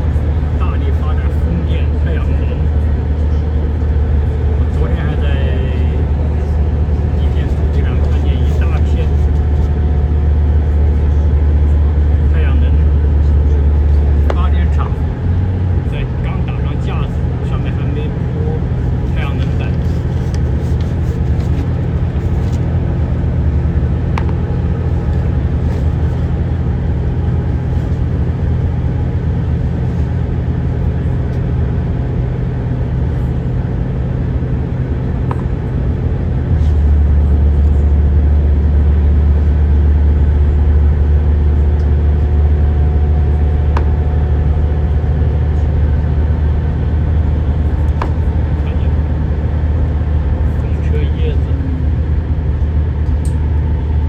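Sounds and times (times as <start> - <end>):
moving car rumble: 0.0 - 54.0.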